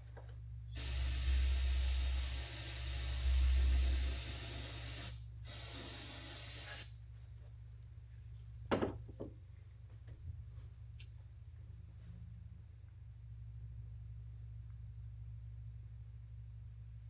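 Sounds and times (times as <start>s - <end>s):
aerosol can spraying: 0.8s - 7.0s.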